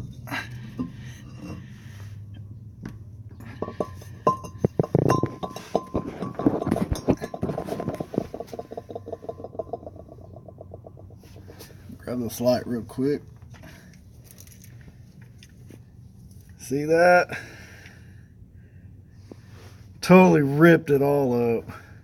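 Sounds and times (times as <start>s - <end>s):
metallic clinks: 3.4s - 11.6s, 14.2s - 14.8s.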